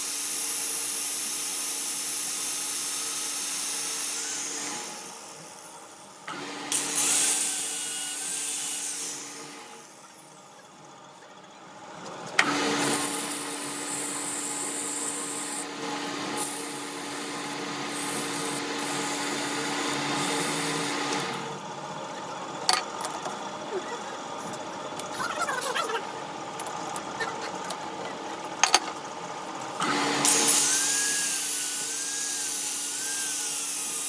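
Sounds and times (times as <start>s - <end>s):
power tool grinding metal: 0.0s - 5.6s, 6.3s - 10.2s, 12.4s - 21.5s, 29.8s - 34.0s.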